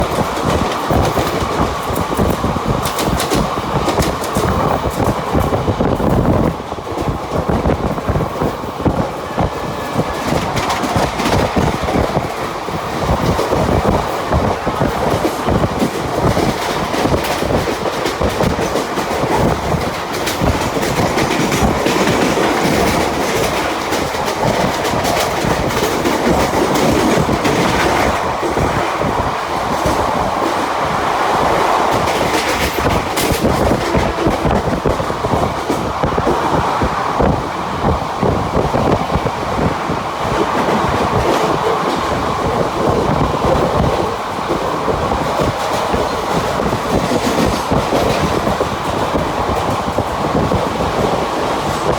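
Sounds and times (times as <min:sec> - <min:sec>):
wheels clattering over rail joints: 0:00.0 - 0:30.8, 0:31.9 - 0:36.4
electric train rumbling: 0:00.0 - 0:51.9.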